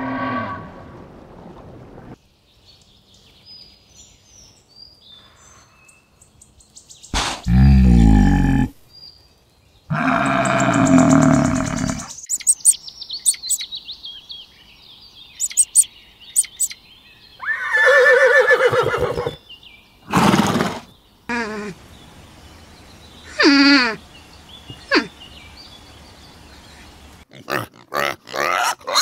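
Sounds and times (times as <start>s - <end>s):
small birds chirping: 2.2s - 27.6s
animal calls and grunts: 7.2s - 8.8s, 9.9s - 13.6s, 24.6s - 25.3s, 26.5s - 29.0s.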